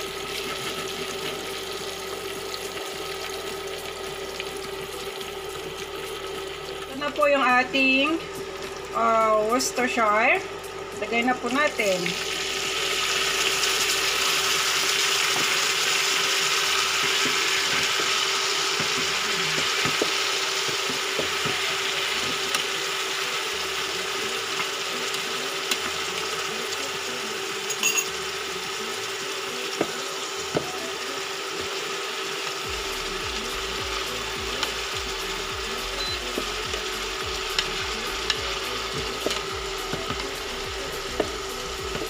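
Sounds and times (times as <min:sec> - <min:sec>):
fish sizzling in a pan: 0:00.0 - 0:42.0.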